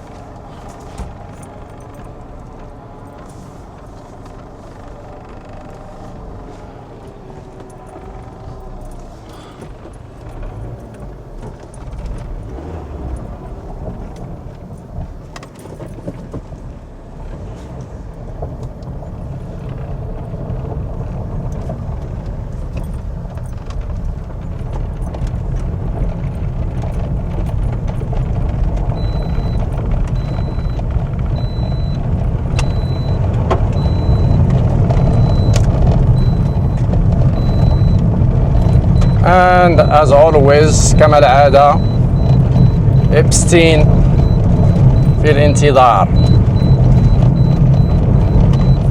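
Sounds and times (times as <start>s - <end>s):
car engine rumble driving off: 0.0s - 48.9s
faint high beep: 30.2s - 30.8s, 31.4s - 32.0s, 36.2s - 36.8s, 38.6s - 40.3s, 41.7s - 48.9s.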